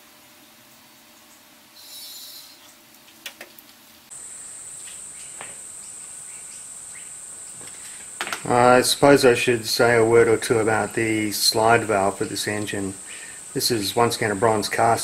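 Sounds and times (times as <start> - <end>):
steady high-pitched whine: 4.0 - 15.0.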